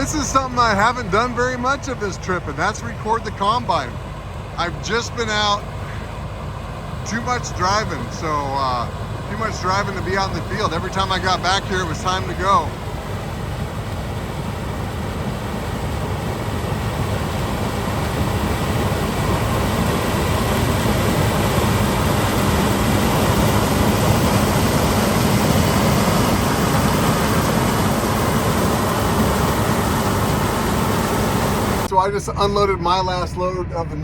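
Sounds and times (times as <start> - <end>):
combine harvester running: 0.0 - 34.0.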